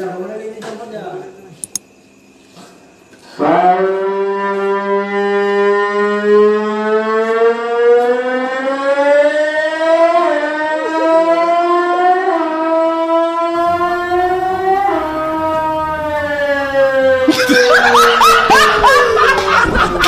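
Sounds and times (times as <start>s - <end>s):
racing motorcycle engine revving: 13.6s - 19.6s.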